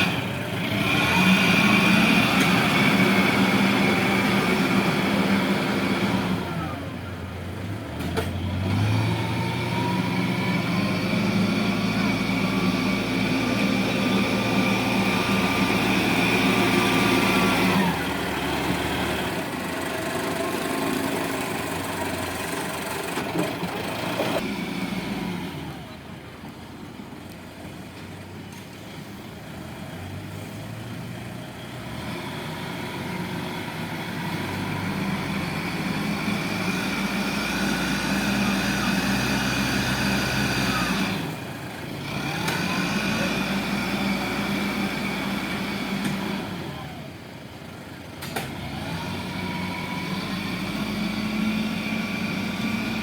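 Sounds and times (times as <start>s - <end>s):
machinery engine running: 8.7s - 26.4s, 32.6s - 53.0s.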